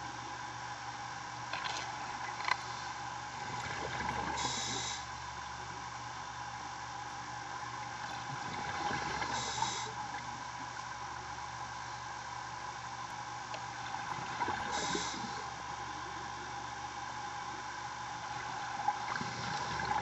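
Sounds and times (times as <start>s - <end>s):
steady mechanical hum: 0.0s - 20.0s
regulator inhale hiss: 4.4s - 5.1s, 9.2s - 10.0s, 14.7s - 15.5s
bubbling exhales: 14.4s - 15.5s.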